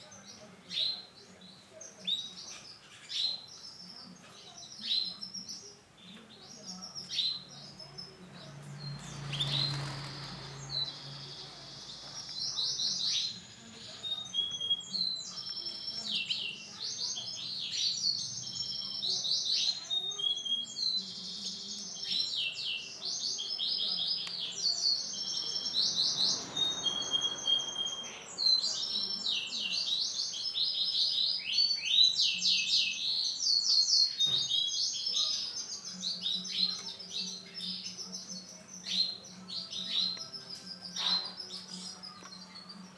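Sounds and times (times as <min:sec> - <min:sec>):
canary singing trills: 0:00.1 - 0:42.9.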